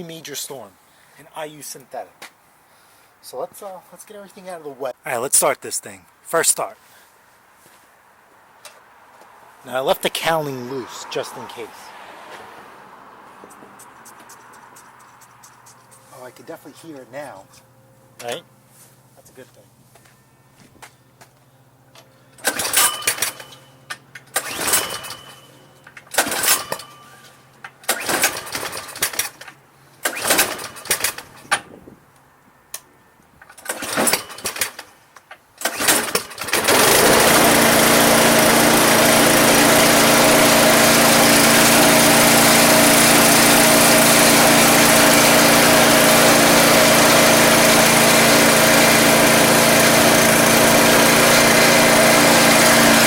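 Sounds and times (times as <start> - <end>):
snowblower engine cranking: 22.3 - 31.5, 33.5 - 34.9, 35.6 - 53.0
snowblower engine running: 35.8 - 53.0.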